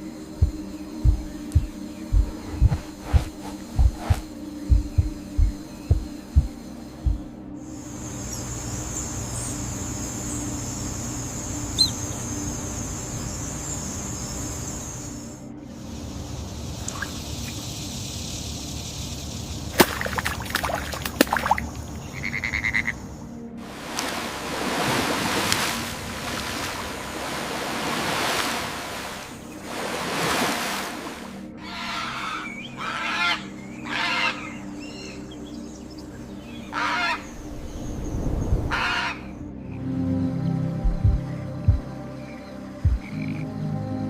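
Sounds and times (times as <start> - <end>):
music drone: 0.0 - 20.2, 20.8 - 44.0
pulsed chirping call: 11.7 - 12.3
loud bird calls: 11.8 - 12.3, 31.6 - 35.4, 36.4 - 37.5, 38.7 - 39.4
flowing water: 19.7 - 22.0, 23.6 - 31.5.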